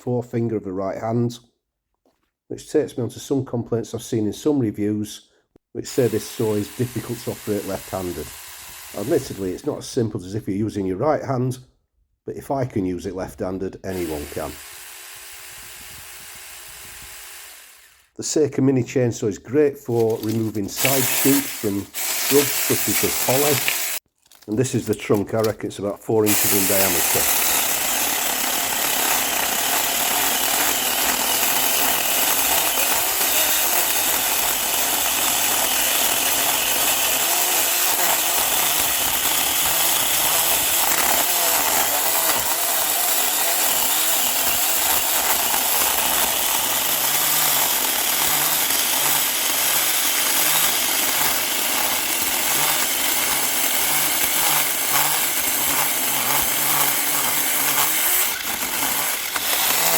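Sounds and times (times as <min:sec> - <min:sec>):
electric chainsaw cutting wood: 0:05.9 - 0:09.7, 0:13.9 - 0:18.2, 0:19.9 - 0:24.1, 0:26.2 - 0:59.9.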